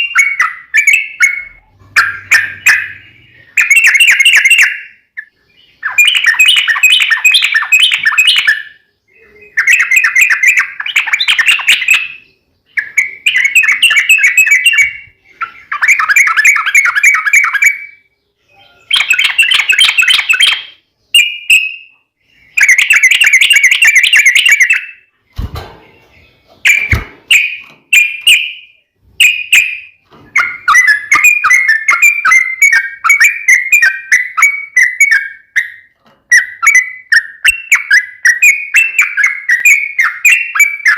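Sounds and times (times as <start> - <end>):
sharp knocks: 26.7 - 27.9.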